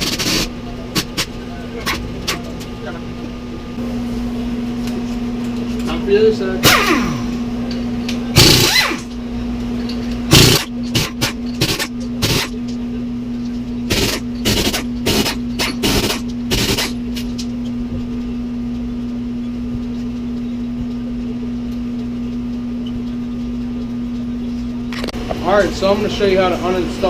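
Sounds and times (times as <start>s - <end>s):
pneumatic impact wrench rattling: 0.0s - 1.3s, 6.6s - 7.4s, 8.3s - 9.2s, 9.8s - 12.6s, 13.8s - 17.5s
steady low hum: 0.0s - 27.0s.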